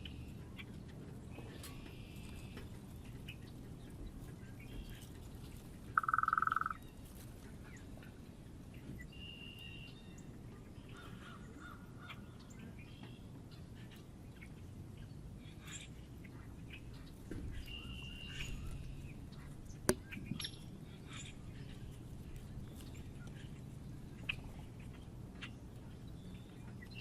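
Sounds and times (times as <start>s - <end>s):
high-pitched bird calls: 5.9s - 7.0s.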